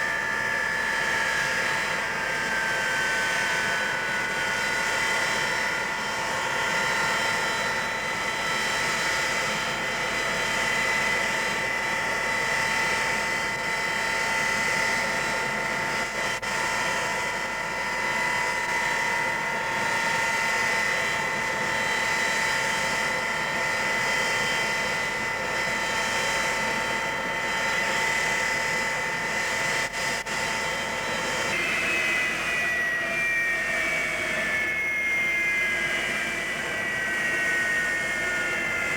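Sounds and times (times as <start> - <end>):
jet engines whining and roaring: 0.0 - 38.9.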